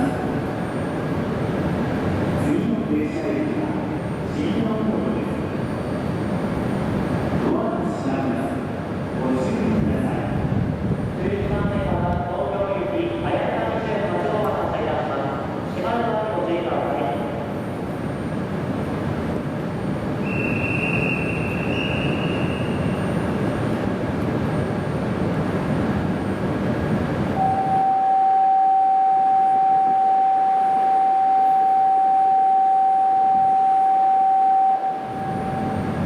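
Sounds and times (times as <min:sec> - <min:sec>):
train accelerating rumble: 0:00.0 - 0:36.0
high whine: 0:27.3 - 0:36.0
steady single-pitch beep: 0:27.4 - 0:36.0.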